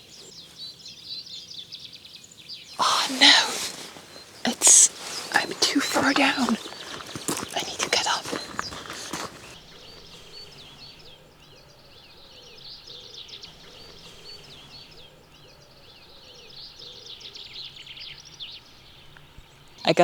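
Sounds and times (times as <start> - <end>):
faint outdoor background: 0.0 - 20.0
small birds chirping: 0.0 - 20.0.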